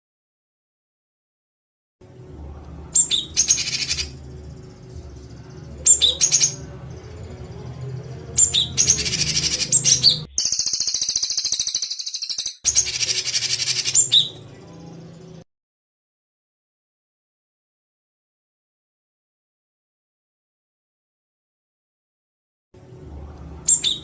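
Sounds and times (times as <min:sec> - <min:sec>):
steady low hum: 0:02.0 - 0:10.3, 0:22.8 - 0:24.0
songbird harsh rapid call: 0:08.4 - 0:14.3.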